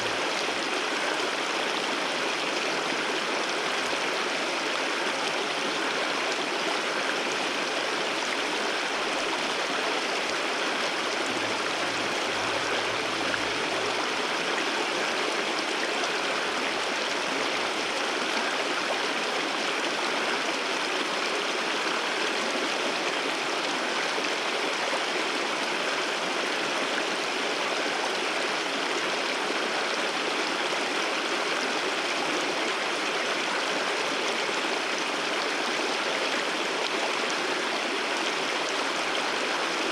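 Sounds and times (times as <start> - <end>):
waterfall pouring and splashing: 6.8 - 25.8.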